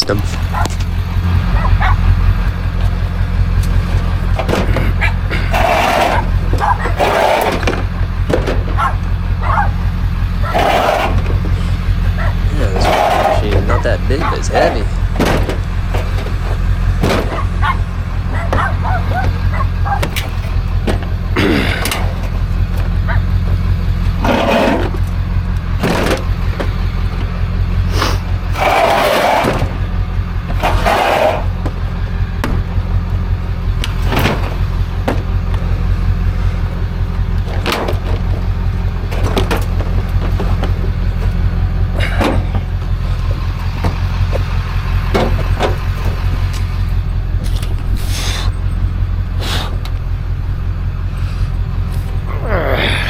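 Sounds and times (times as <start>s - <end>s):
vehicle engine running: 0.0s - 53.0s
scrapes: 4.3s - 9.0s, 10.4s - 17.8s, 24.2s - 25.0s, 27.9s - 29.8s, 30.5s - 31.6s.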